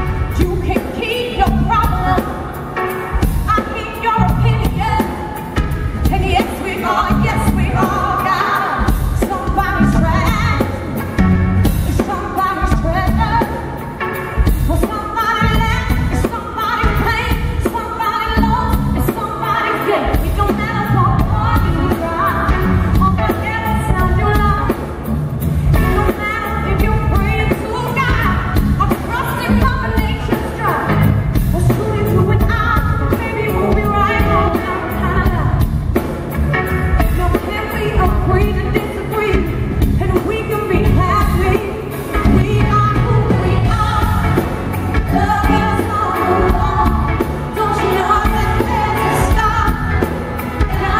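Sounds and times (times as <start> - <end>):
woman singing: 0.0 - 11.0, 11.7 - 24.8, 25.7 - 35.8, 36.9 - 50.9
soul band playing: 0.0 - 50.9
heavy bass: 3.2 - 8.2, 8.8 - 13.5, 20.2 - 50.9.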